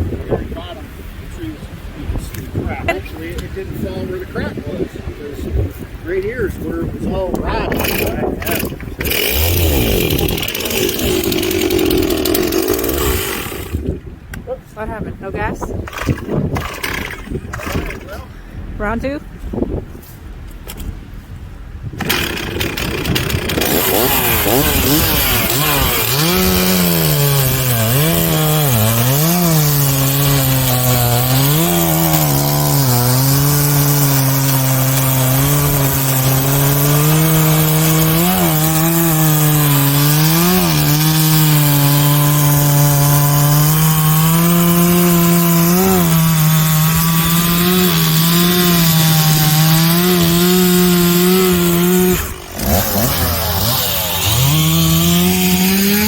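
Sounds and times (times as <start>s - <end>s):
chainsaw cutting wood: 7.3s - 14.0s, 15.3s - 18.1s, 22.0s - 56.0s.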